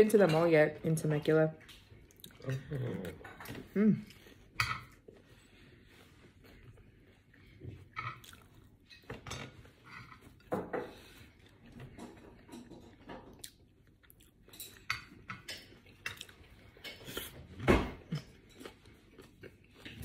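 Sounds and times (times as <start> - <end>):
person chewing: 1.7 - 8.9, 13.3 - 20.0.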